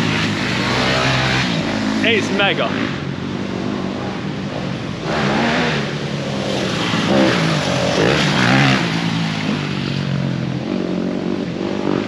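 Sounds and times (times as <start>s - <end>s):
dirt bike engines revving: 0.0s - 3.0s.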